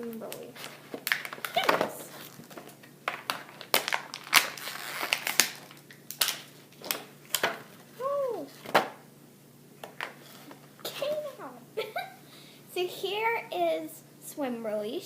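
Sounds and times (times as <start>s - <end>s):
plastic crinkling: 0.0s - 7.8s
plastic packaging clicks and snaps: 0.1s - 7.6s.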